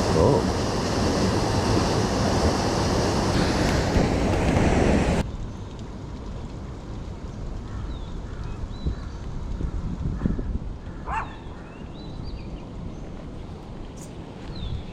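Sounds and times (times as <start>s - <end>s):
loud rushing noise: 0.0s - 5.2s.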